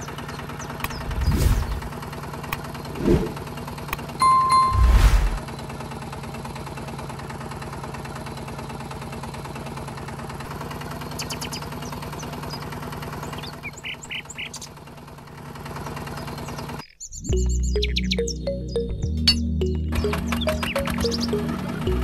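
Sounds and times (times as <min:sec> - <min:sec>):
short high chirps: 0:04.2 - 0:05.4.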